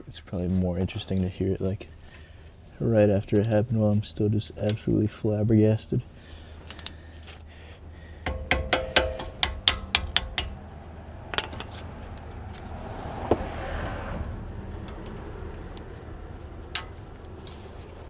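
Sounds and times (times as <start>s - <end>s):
metal tools tapping on brake parts: 0.8s - 1.4s, 6.6s - 12.7s, 16.6s - 17.8s
knocks: 8.3s - 10.7s
rushing sound: 10.5s - 16.4s.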